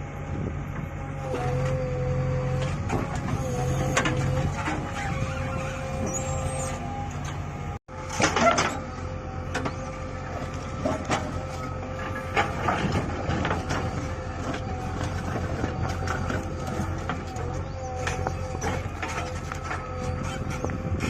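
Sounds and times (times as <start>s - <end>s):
diesel engine running under load: 0.0s - 21.0s
digging knocks and clanks: 7.1s - 21.0s.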